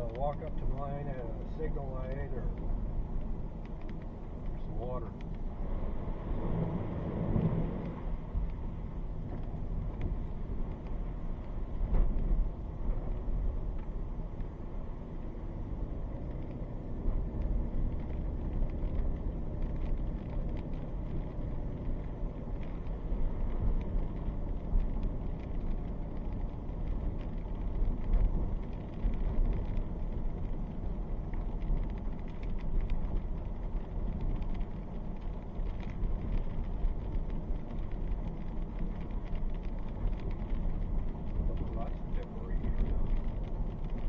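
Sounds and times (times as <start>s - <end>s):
car interior rumble: 0.0s - 44.0s
faint ticks: 0.1s - 5.5s, 17.4s - 44.0s.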